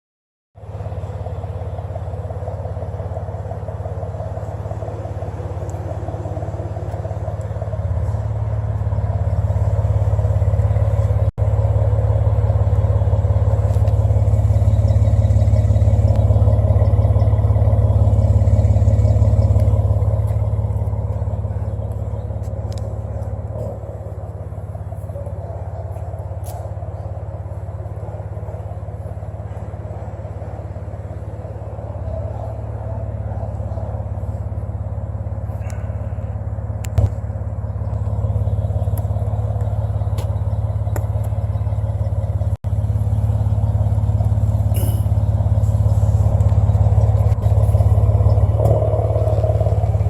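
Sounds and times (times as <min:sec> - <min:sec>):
car exhaust idling: 0:00.6 - 0:50.0.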